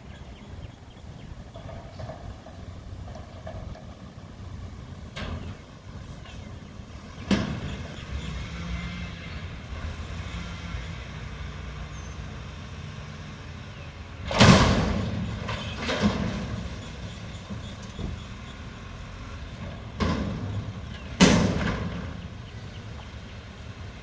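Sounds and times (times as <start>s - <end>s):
garbage truck engine running: 0.0s - 24.0s
loud ringing bangs: 19.9s - 22.6s.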